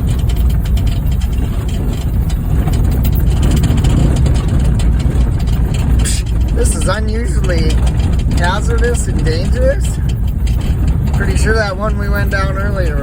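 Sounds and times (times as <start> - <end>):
car rumbling on dirt road: 0.0 - 13.0.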